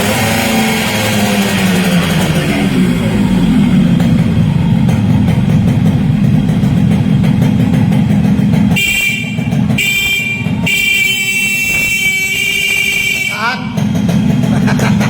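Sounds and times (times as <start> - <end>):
motorcycle engine buzzing: 0.0 - 15.0
motorcycle horn blasts: 8.6 - 13.9.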